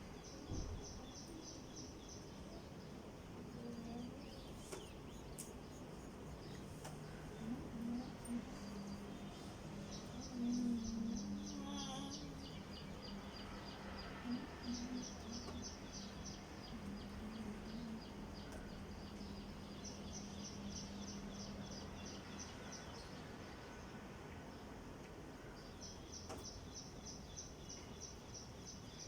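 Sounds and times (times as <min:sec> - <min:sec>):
bird chirping: 0:00.0 - 0:23.2
steady low hum: 0:00.0 - 0:26.2.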